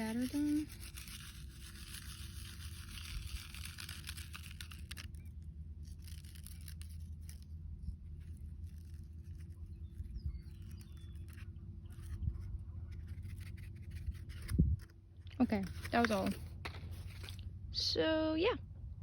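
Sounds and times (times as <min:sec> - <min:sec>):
seeds rustling from packet: 0:00.0 - 0:17.5.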